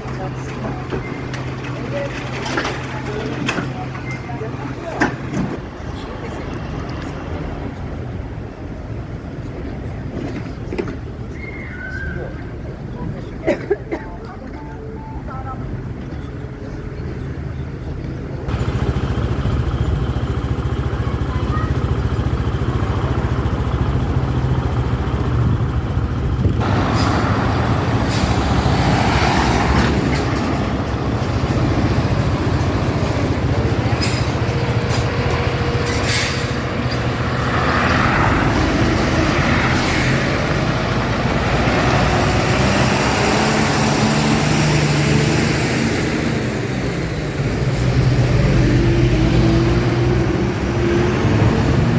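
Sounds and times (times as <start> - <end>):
engine running steadily: 17.8 - 49.6
broad rushing noise: 24.9 - 51.9.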